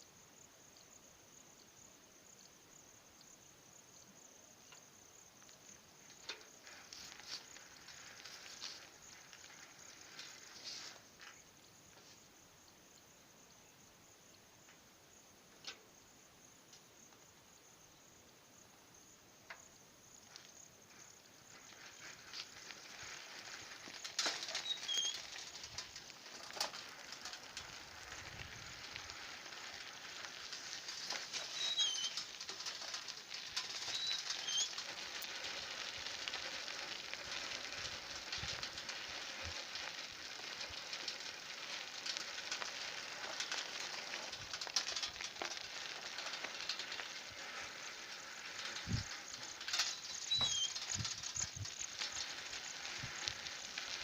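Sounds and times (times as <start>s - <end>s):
steady hiss: 0.0s - 54.0s
high bird chirps: 31.5s - 32.2s, 49.8s - 51.6s.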